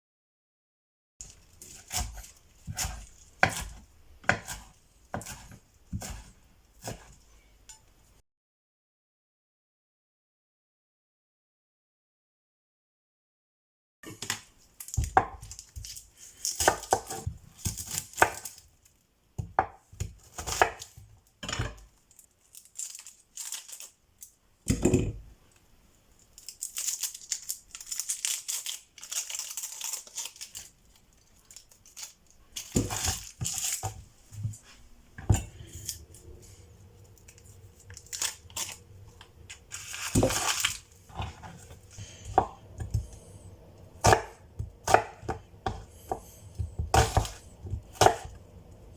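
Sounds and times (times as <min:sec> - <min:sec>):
tearing and crinkling: 0:22.0 - 0:24.4, 0:26.2 - 0:34.0, 0:37.0 - 0:42.1.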